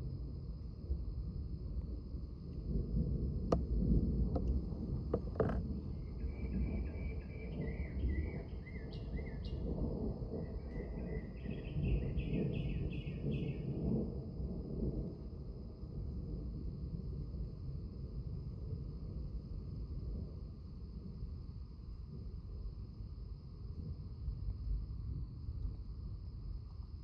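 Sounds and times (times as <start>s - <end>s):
low outdoor rumble: 0.0s - 8.6s.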